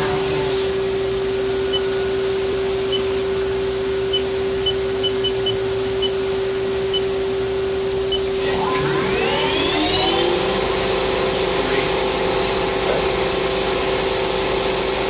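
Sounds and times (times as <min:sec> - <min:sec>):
lathe humming and hissing: 0:00.0 - 0:15.0.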